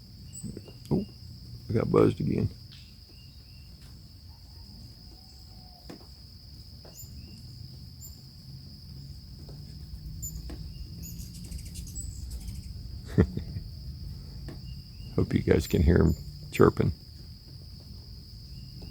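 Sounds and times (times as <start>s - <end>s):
crickets trilling: 0.0s - 18.9s
low outdoor rumble: 0.0s - 18.9s
hummingbird chirps: 0.2s - 1.4s, 2.0s - 3.7s, 9.9s - 13.1s, 13.8s - 17.0s, 18.4s - 18.8s.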